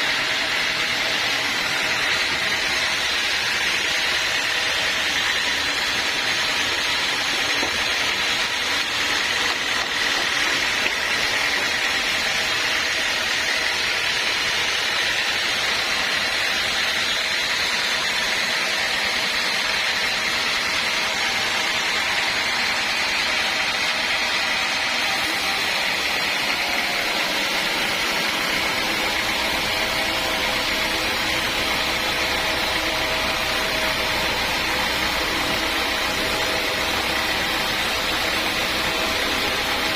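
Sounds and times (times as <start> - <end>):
sawmill machinery hissing: 0.0 - 39.9.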